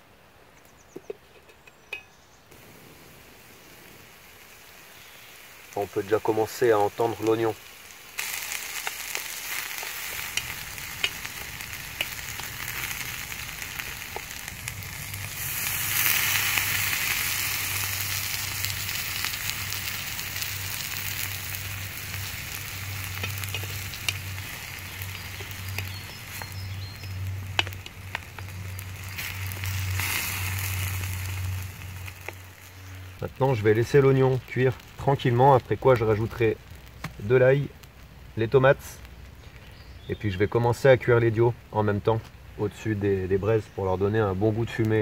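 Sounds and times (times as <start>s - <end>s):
onion sizzling in frying pan: 1.9s - 40.6s
small clicks and pops: 8.2s - 15.4s, 20.9s - 33.3s, 35.9s - 37.2s.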